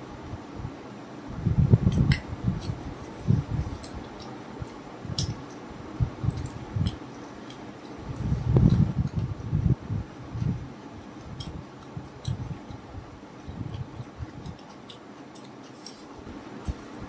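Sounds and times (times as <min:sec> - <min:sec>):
chewing: 0:11.2 - 0:16.1.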